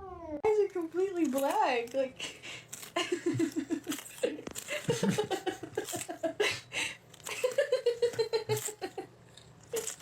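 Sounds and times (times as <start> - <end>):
person laughing: 3.0 - 9.2.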